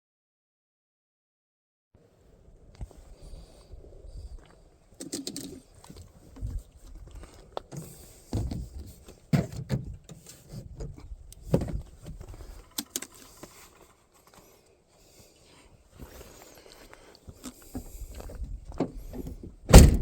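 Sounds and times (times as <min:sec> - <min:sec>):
handling knocks and clicks: 0:05.0 - 0:06.5, 0:07.2 - 0:14.5.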